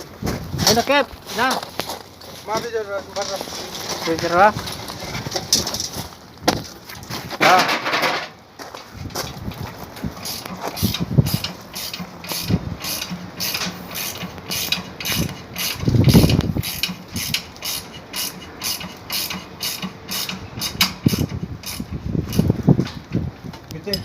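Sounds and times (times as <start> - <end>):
ratchet clicking: 10.2 - 22.5.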